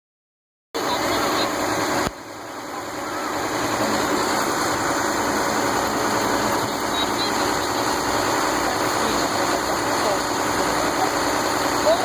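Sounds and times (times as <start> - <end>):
outdoor noise: 0.8 - 12.0
vehicle engine idling: 0.8 - 12.0.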